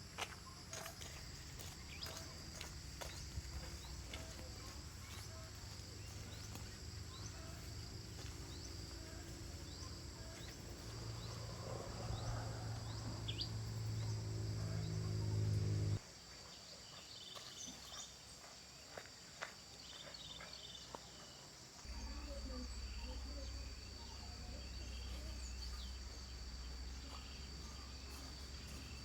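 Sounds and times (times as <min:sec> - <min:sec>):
insects chirring: 0:00.0 - 0:29.0
low hum with overtones: 0:10.6 - 0:16.0.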